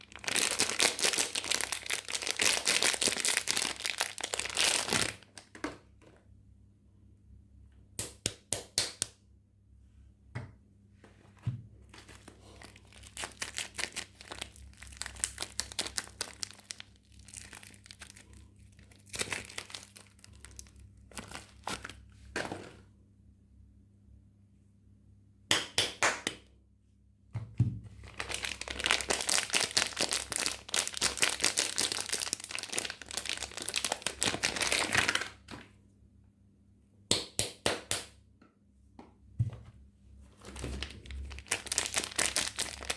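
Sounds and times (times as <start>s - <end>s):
wrapper crinkling and tearing: 0.0s - 5.5s, 11.9s - 22.2s, 28.0s - 35.5s, 40.4s - 42.9s.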